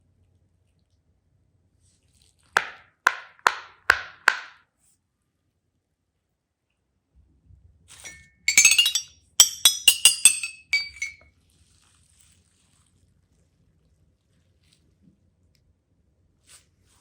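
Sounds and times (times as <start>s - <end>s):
small hard objects clinking: 8.0s - 11.2s.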